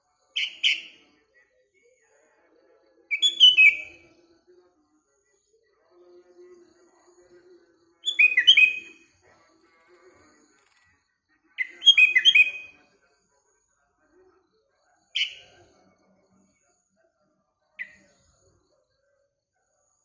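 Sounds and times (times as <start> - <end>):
bird singing whistled notes: 0.4 - 1.0, 3.1 - 4.0, 8.0 - 9.1, 11.6 - 12.8.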